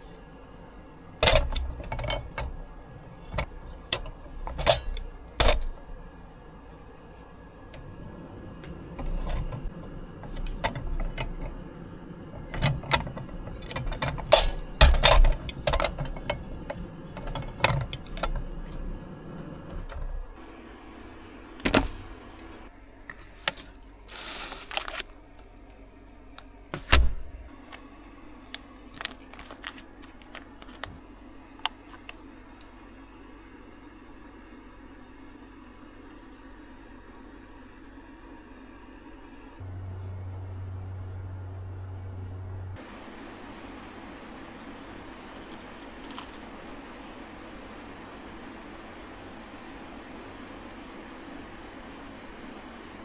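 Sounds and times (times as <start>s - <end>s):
hissing rustle: 23.2s - 25.2s
small objects clicking and knocking: 29.0s - 31.0s, 45.4s - 46.8s.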